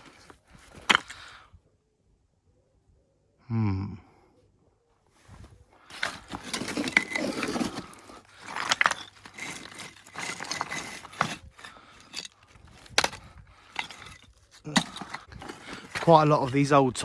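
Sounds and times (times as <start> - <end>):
stones clacking together: 0.0 - 1.2, 5.9 - 17.0
stones scraping: 0.0 - 1.3, 5.8 - 17.0.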